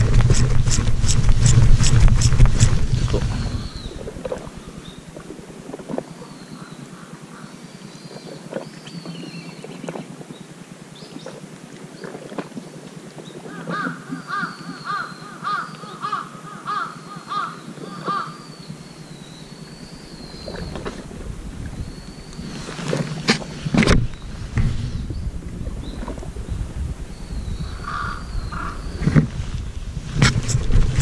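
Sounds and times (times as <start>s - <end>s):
faint high-pitched bird calls: 13.4s - 20.9s, 27.2s - 29.0s.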